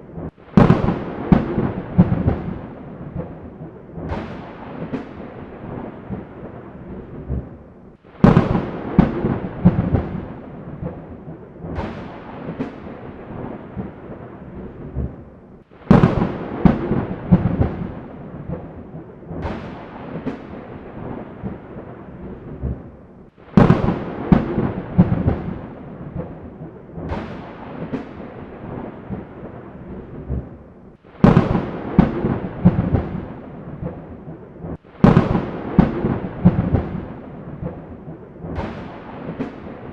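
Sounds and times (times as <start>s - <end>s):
thunderclaps rumbling: 0.0s - 39.9s.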